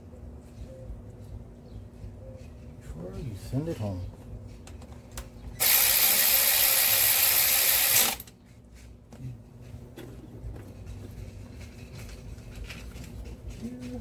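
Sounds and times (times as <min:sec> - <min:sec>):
power ratchet running: 0:05.6 - 0:08.3.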